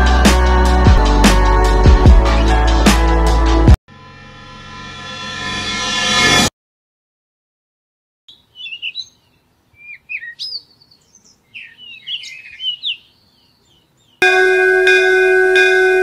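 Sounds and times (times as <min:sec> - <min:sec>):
small birds chirping: 0:08.3 - 0:14.2.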